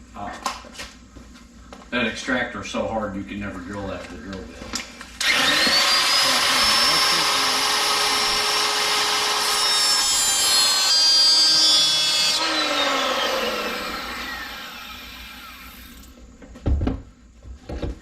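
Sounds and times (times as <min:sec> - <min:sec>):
power tool spinning down: 0:05.2 - 0:16.2
power tool whining: 0:05.2 - 0:16.2.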